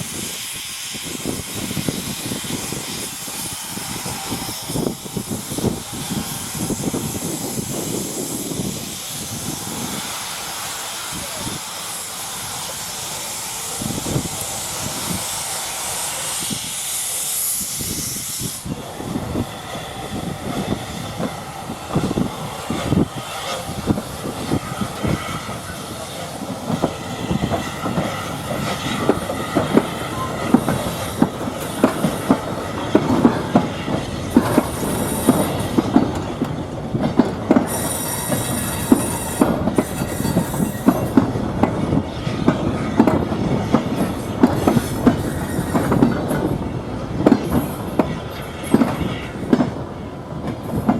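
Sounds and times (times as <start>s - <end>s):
steam hiss: 0.0s - 50.9s
train wheels clattering: 1.0s - 50.9s
wheel squeal: 37.7s - 41.2s, 44.0s - 46.4s.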